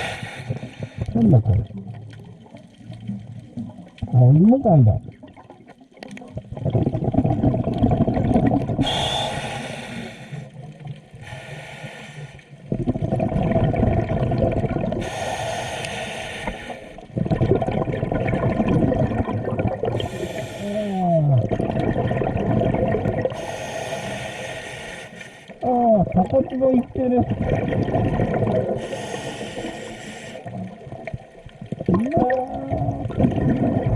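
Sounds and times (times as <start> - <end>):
regulator inhale hiss: 0.0 - 1.1, 8.8 - 10.6, 11.2 - 12.5, 15.0 - 17.0, 20.0 - 21.0, 23.4 - 25.6, 28.8 - 30.5
exhaled bubbles rushing: 0.5 - 9.1, 12.6 - 15.2, 17.0 - 20.4, 21.1 - 23.5, 25.6 - 29.8, 30.4 - 33.9.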